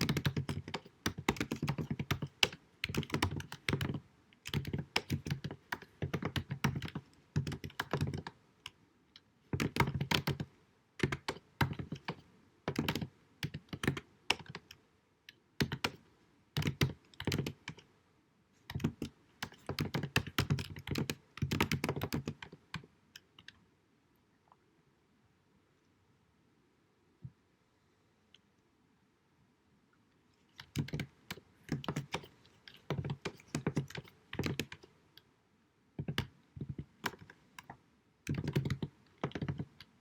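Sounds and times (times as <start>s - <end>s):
computer keyboard typing: 0.0s - 8.8s, 9.5s - 14.8s, 15.6s - 16.0s, 16.6s - 17.8s, 18.7s - 23.6s, 30.6s - 34.9s, 36.0s - 40.0s.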